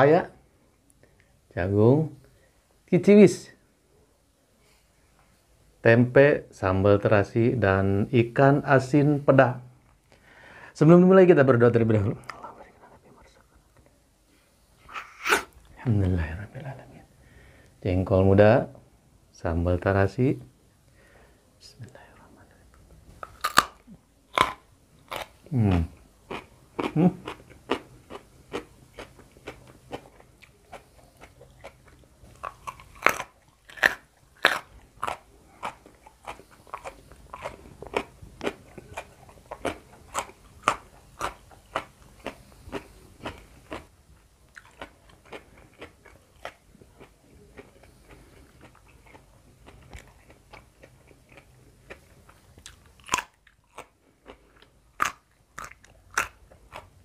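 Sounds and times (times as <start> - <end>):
crisp crunching and chewing: 23.2 - 43.9, 44.5 - 57.0.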